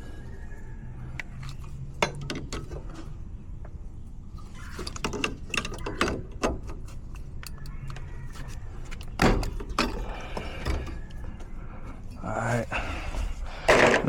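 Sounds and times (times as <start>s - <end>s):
steady low hum: 6.2s - 14.0s.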